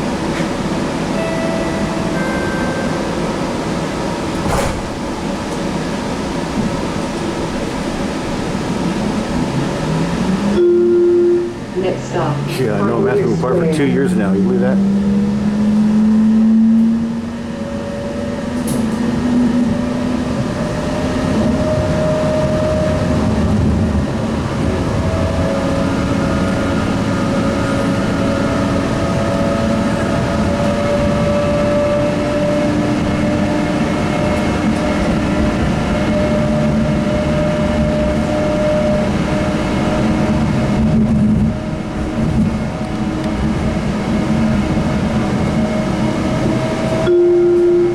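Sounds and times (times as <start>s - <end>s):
light rail car rumble: 0.0s - 47.9s.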